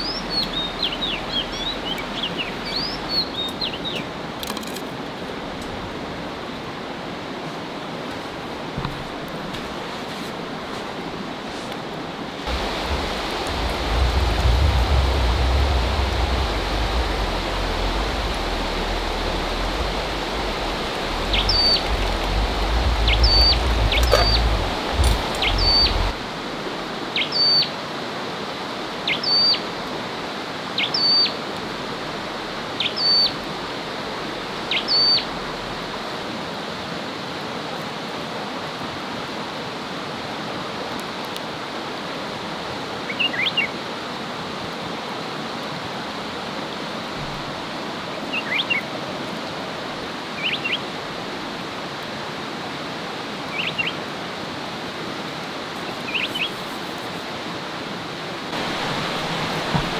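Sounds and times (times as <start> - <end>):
steady rushing noise: 12.4 - 27.1, 31.4 - 36.5, 58.3 - 59.9
low rumble: 12.5 - 26.4.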